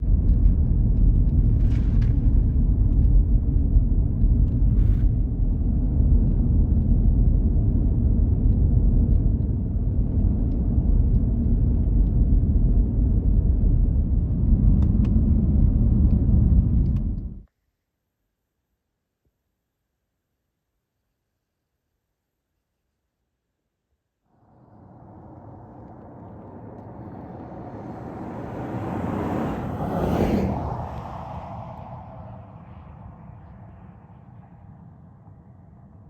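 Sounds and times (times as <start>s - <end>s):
wind buffeting microphone: 24.4s - 36.0s.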